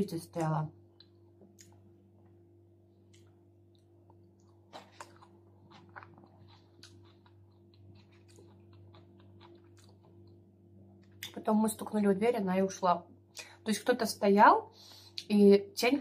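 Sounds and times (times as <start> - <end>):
low hum: 0.0 - 15.2
chewing salad: 3.1 - 10.4.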